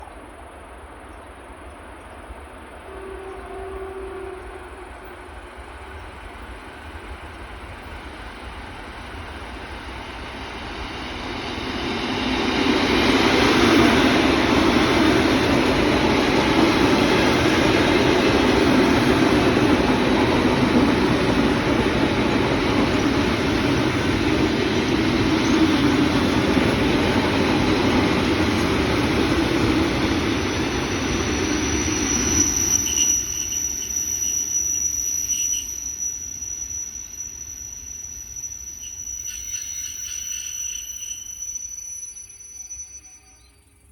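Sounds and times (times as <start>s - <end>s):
train wheels rumbling on rails: 0.0s - 42.7s
high-pitched brake squeal: 30.4s - 43.7s.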